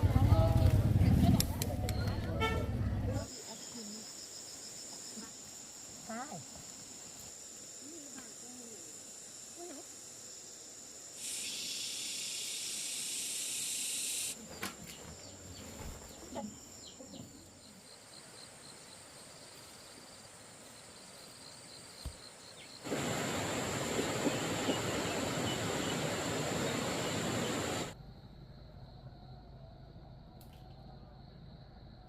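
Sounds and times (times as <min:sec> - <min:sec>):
insects trilling: 0:03.2 - 0:32.0
loud hiss: 0:03.3 - 0:14.4, 0:22.8 - 0:28.0
faint rapid chirping: 0:03.3 - 0:19.0.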